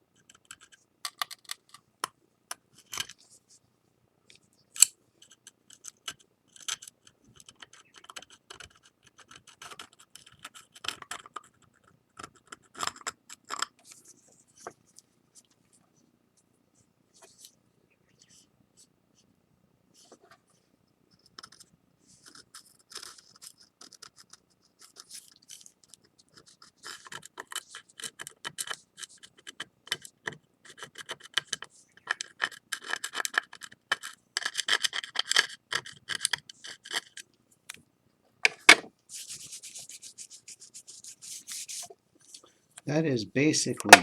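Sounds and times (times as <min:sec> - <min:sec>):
sandpaper rubbing on ceramic: 0:39.1 - 0:41.9.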